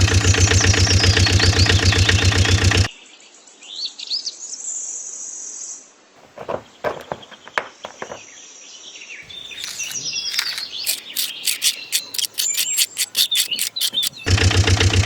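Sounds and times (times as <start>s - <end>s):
birds chirping: 9.2s - 14.3s
sharp clicks: 9.3s - 14.3s.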